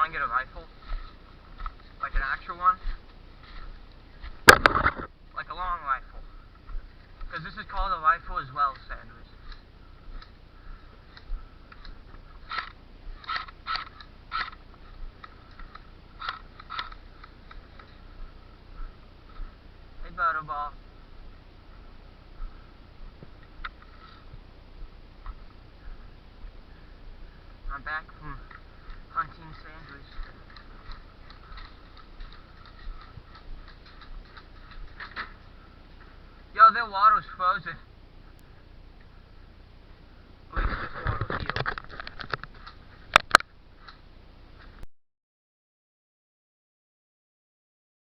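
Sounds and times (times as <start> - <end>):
footsteps crunching on ground: 0.0 - 36.6.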